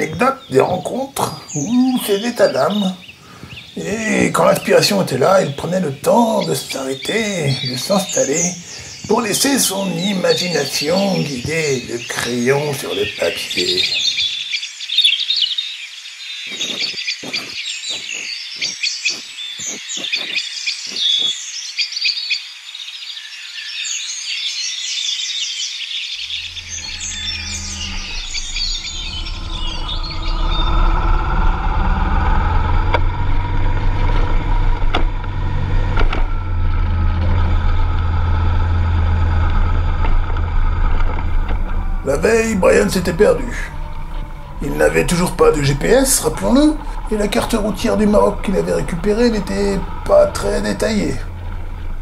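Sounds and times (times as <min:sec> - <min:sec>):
birds chirping: 0:00.0 - 0:52.0
motorcycle engine running: 0:26.2 - 0:52.0.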